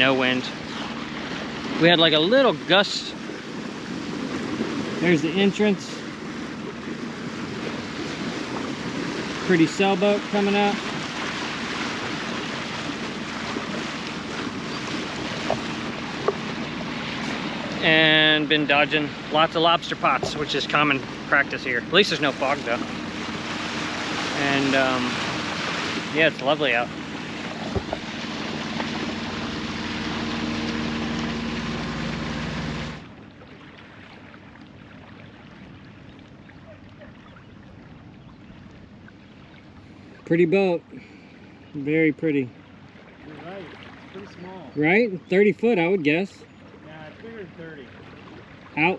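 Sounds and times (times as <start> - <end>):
faint boat engine hum: 0.0 - 48.9
water rushing along hull: 0.0 - 48.9
wind: 0.0 - 48.9
wind on microphone: 20.0 - 33.0.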